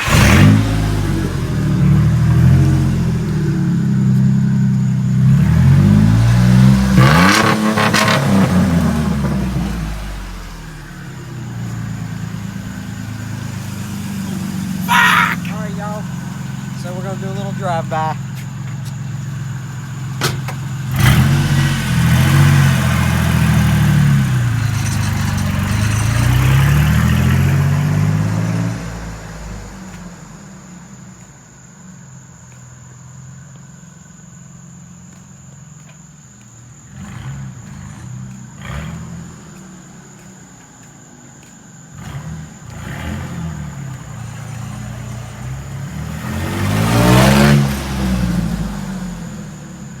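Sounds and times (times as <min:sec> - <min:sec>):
truck engine revving: 0:00.0 - 0:29.9, 0:36.9 - 0:40.2, 0:42.0 - 0:50.0
truck passing close by: 0:00.0 - 0:30.2, 0:42.0 - 0:50.0.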